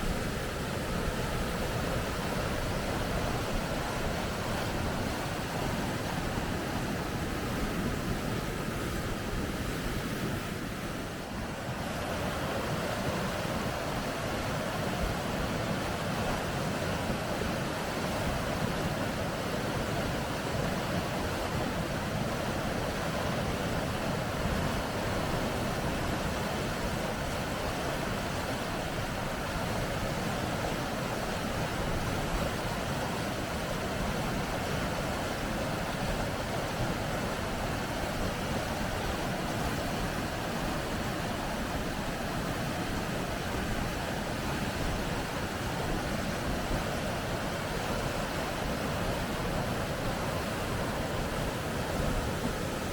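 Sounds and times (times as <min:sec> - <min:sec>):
water rushing over rapids: 0:00.0 - 0:52.9.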